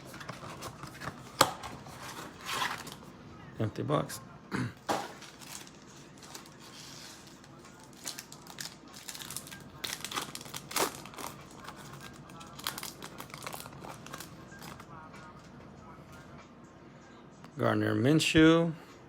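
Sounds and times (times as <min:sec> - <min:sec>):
plastic packaging crinkling and tearing: 0:00.0 - 0:03.1, 0:05.1 - 0:14.9.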